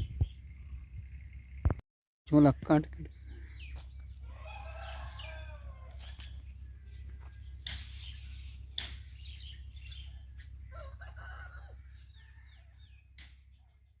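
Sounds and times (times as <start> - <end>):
low rumble: 0.0 - 1.8, 5.0 - 10.8.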